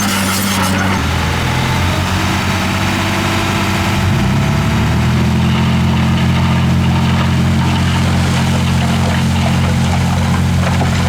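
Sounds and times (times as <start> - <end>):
heavy diesel engine revving: 0.0 - 11.0.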